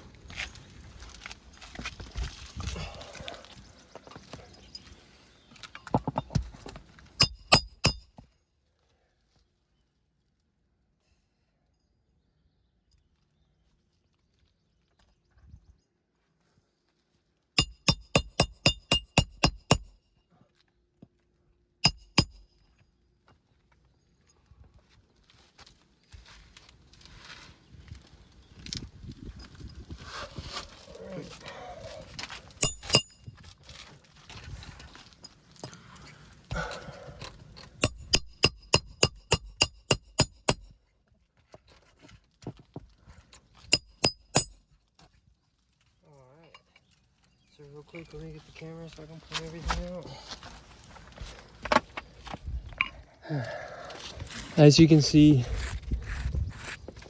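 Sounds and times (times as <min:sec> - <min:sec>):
hammer striking metal: 0:07.2 - 0:08.3, 0:17.6 - 0:20.1, 0:21.8 - 0:22.6, 0:32.6 - 0:33.3, 0:37.8 - 0:40.7, 0:43.8 - 0:44.6.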